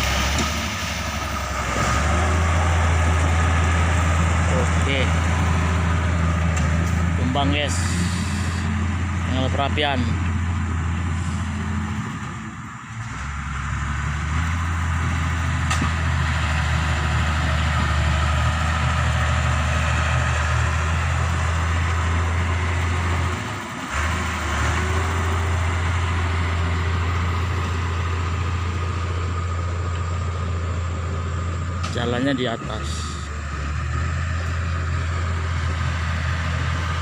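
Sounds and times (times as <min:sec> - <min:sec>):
bulldozer diesel engine running: 0:00.0 - 0:37.0.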